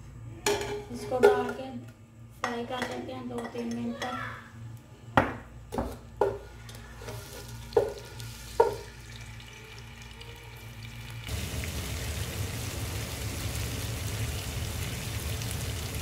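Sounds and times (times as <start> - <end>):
paste sizzling in hot oil: 6.9 - 16.0.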